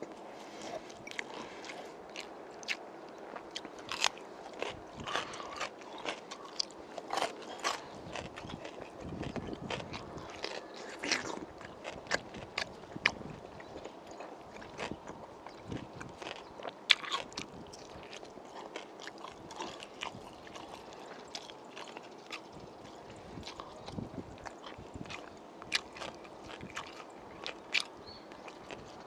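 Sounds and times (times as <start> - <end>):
chewing and biting with clicks: 0.0 - 29.0.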